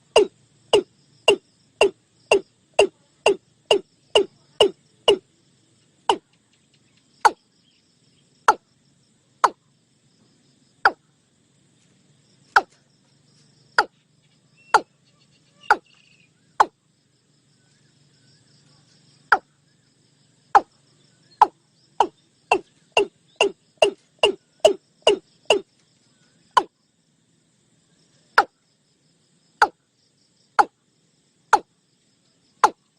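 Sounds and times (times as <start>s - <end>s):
bird calling with knocking notes: 0.0s - 5.2s, 6.1s - 7.4s, 8.4s - 8.7s, 10.8s - 11.0s, 12.5s - 12.8s, 13.7s - 16.8s, 19.3s - 19.5s, 20.6s - 25.8s, 26.5s - 26.8s, 28.4s - 28.6s, 29.6s - 29.8s, 31.5s - 31.7s, 32.6s - 32.9s.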